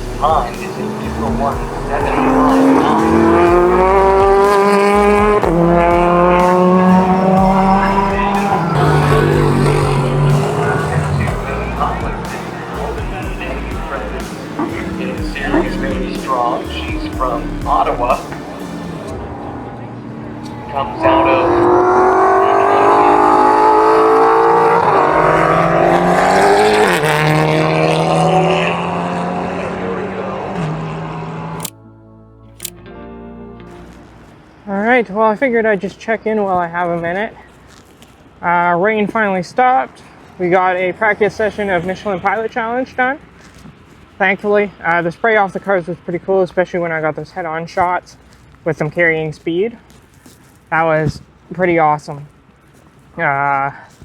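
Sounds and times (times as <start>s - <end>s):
race car engine at full throttle: 0.0s - 31.8s.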